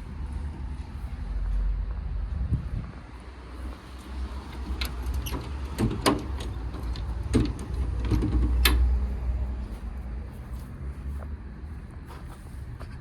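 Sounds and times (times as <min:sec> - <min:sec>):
steady low rumble: 0:00.0 - 0:13.0
compartment doors and latches clunking: 0:04.4 - 0:09.1.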